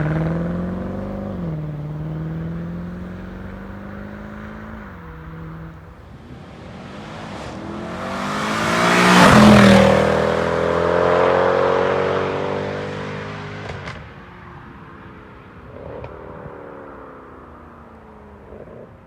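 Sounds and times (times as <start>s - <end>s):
car engine driving past: 0.0s - 14.1s.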